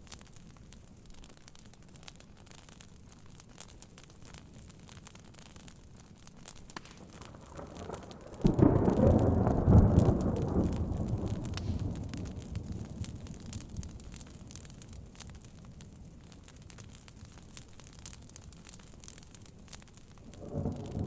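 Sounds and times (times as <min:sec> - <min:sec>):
soft rain hiss: 0:00.0 - 0:21.0
thunder clap and rumble: 0:07.4 - 0:14.2, 0:20.2 - 0:21.0.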